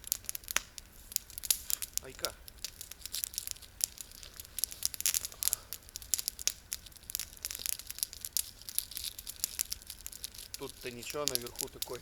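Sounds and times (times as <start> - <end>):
candy wrapper crinkling: 1.2 - 12.0.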